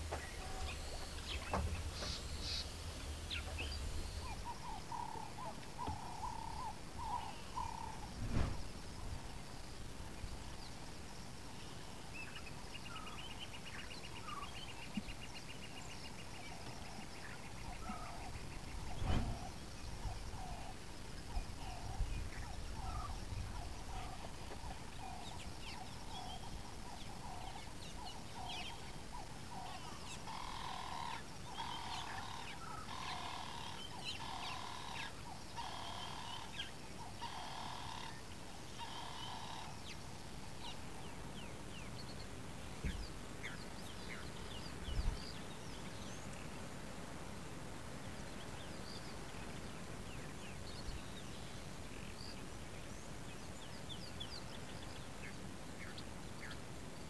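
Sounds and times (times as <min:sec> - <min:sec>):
faint chirps of other birds: 0:00.0 - 0:57.0
low thumps: 0:08.1 - 0:09.2, 0:18.9 - 0:19.6.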